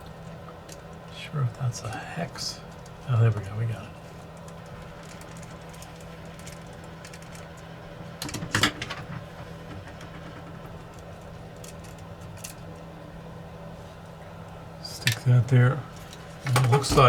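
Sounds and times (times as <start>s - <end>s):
low hum of bench equipment: 0.0s - 17.0s
small clicks and taps of parts: 4.2s - 12.9s.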